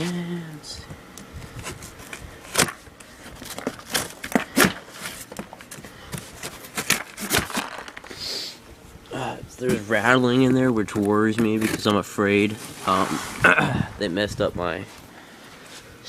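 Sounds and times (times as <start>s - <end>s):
cardboard scrapes and crackles: 1.4s - 8.1s, 11.0s - 13.5s
contents rattling in box: 3.3s - 8.2s.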